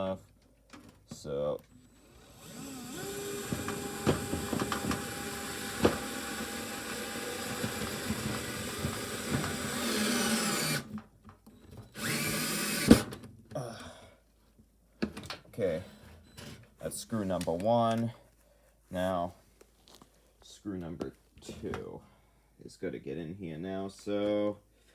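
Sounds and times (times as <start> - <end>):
cordless drill driving screw: 1.8 - 11.0, 11.9 - 13.2.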